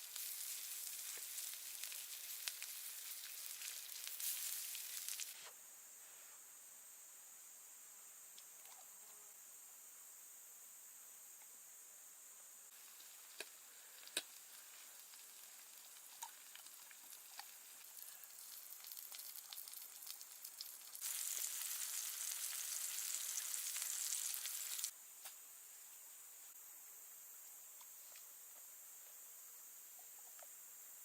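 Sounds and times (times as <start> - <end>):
food sizzling in a hot pan: 0.0 - 5.5, 12.7 - 24.9.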